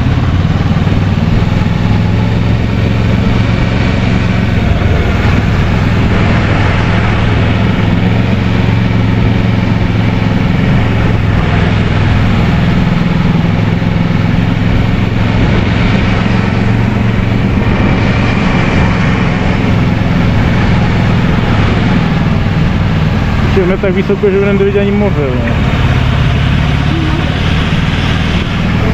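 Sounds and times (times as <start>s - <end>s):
motorcycle engine running: 0.0s - 28.9s
wind noise: 0.0s - 28.9s.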